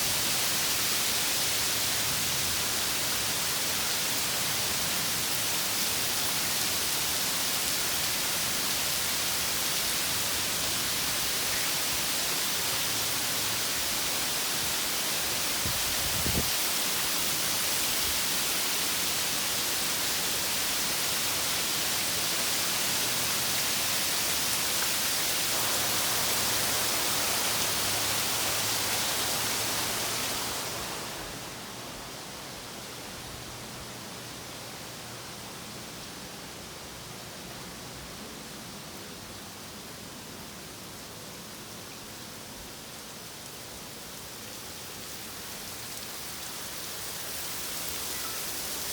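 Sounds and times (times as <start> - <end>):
heavy rain pouring: 0.0 - 32.7.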